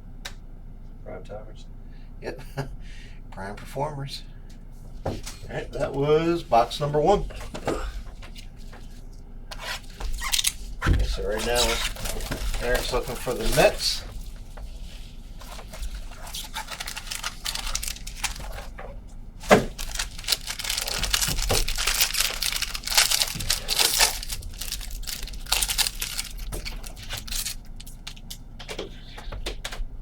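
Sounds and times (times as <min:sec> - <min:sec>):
plastic wrap crinkling and tearing: 0:09.6 - 0:28.4.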